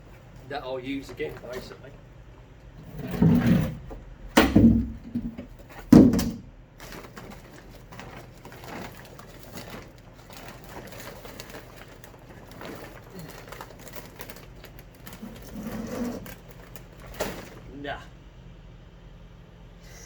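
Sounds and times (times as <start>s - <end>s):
bag of compost thudding: 3.0s - 18.1s.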